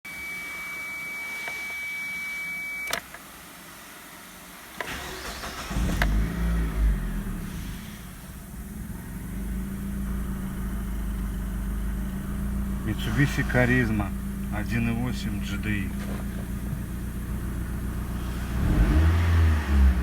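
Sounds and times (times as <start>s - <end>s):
click: 2.8s - 3.2s
car engine idling: 2.8s - 20.0s.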